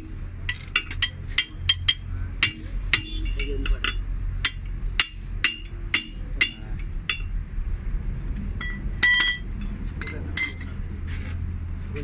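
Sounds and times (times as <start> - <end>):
hammer striking steel wheel rim: 0.0 - 7.4, 8.6 - 10.8
steady low hum: 0.0 - 12.0.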